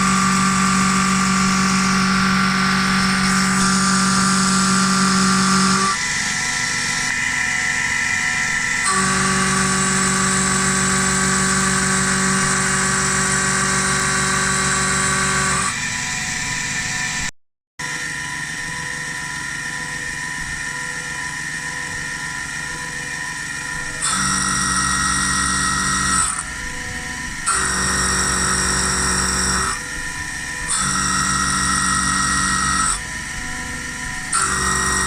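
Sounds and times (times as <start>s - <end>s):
milling machine spindle whine: 0.0s - 35.0s.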